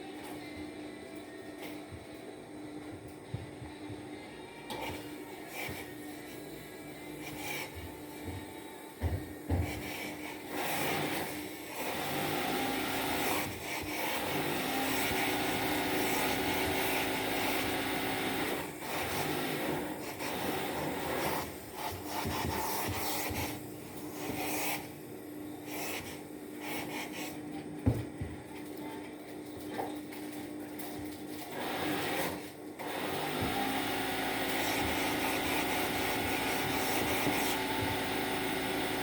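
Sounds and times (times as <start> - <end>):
steam iron hissing: 7.0 - 7.9, 25.6 - 27.4, 31.9 - 39.0.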